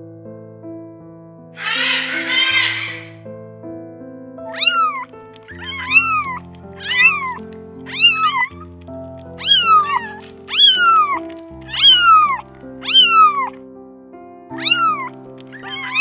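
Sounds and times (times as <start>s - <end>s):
kittens mewing: 1.6s - 3.2s, 4.5s - 13.6s, 14.5s - 16.0s
soft background music: 1.6s - 3.6s, 4.4s - 16.0s.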